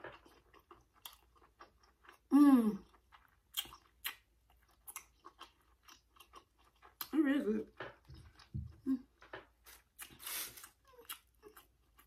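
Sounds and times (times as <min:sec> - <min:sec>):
wet chewing with lip smacks: 0:00.0 - 0:07.2.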